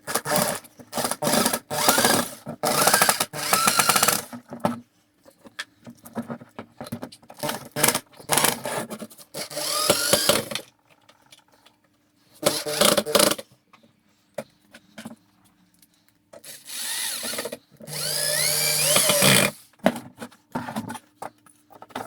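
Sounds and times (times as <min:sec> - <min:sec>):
electric drill whining: 0:01.3 - 0:04.2, 0:09.4 - 0:10.5, 0:12.4 - 0:13.4, 0:16.5 - 0:19.5.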